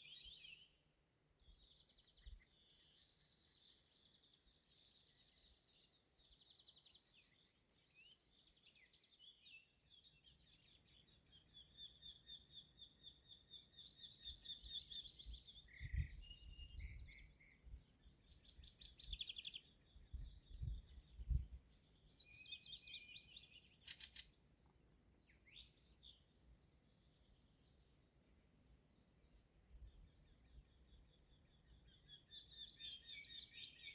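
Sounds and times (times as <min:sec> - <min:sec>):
songbirds singing: 0:00.0 - 0:33.9.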